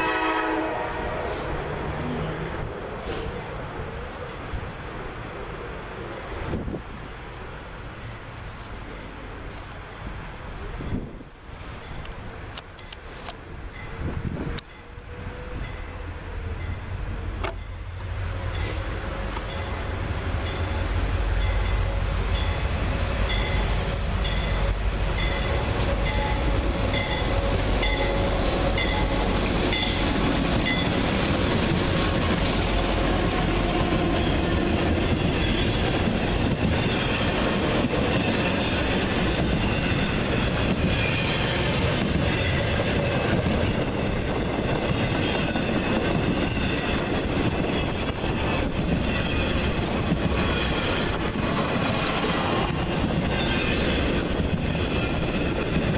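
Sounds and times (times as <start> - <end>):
train wheels clattering on rails: 18.4 - 55.9.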